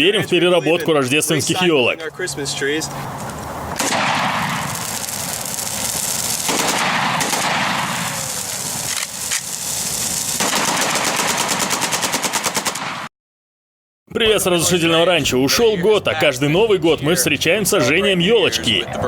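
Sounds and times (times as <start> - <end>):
firecrackers popping: 3.1 - 13.0.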